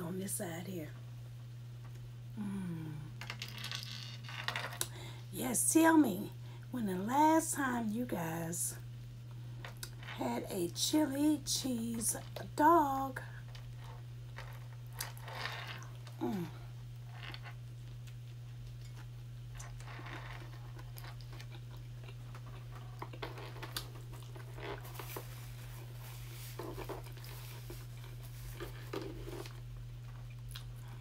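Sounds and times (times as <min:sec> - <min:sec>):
steady low hum: 0:00.0 - 0:31.0
person chewing food: 0:17.3 - 0:25.0, 0:25.9 - 0:31.0.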